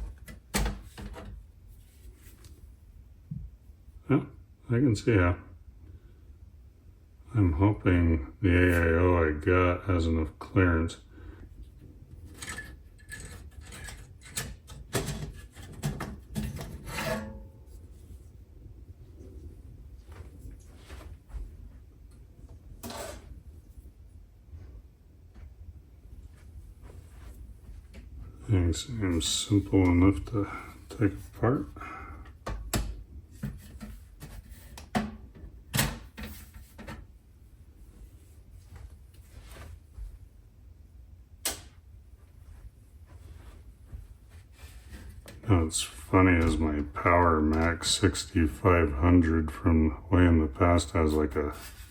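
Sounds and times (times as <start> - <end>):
quiet handling of parts: 0.0 - 3.8, 11.4 - 40.7
hands rubbing and scraping parts: 11.7 - 18.4.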